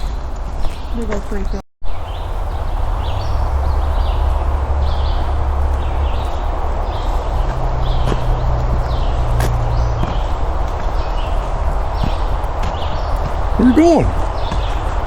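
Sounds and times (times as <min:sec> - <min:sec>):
low rumble: 0:01.8 - 0:10.6.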